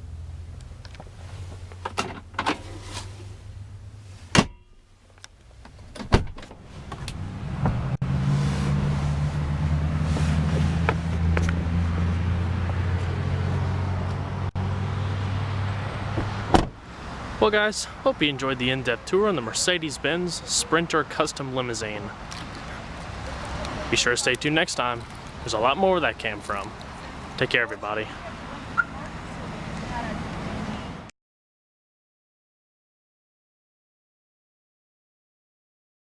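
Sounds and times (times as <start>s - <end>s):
low engine hum: 4.9s - 17.4s
vehicle door knocking shut: 16.2s - 16.8s.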